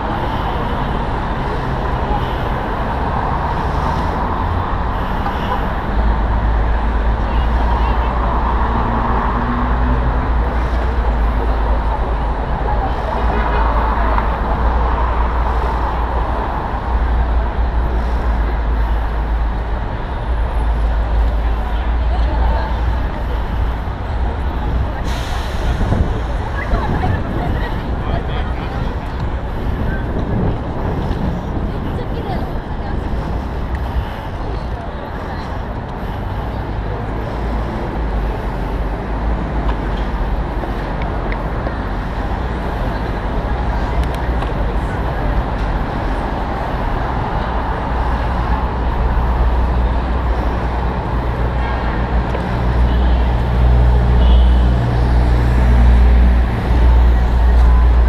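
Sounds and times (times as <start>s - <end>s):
city street traffic: 0.0s - 58.0s
road rumble: 0.0s - 58.0s
wind on microphone: 22.8s - 35.0s.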